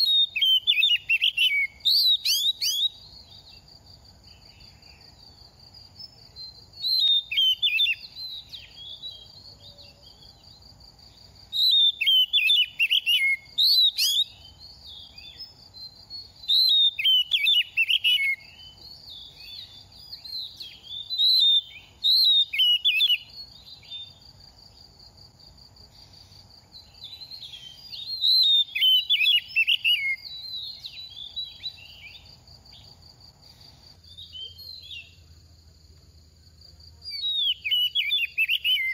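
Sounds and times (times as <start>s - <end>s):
magpie-robin whistled song: 0.0s - 3.7s, 5.9s - 10.7s, 11.4s - 24.2s, 26.0s - 35.2s, 37.0s - 38.9s.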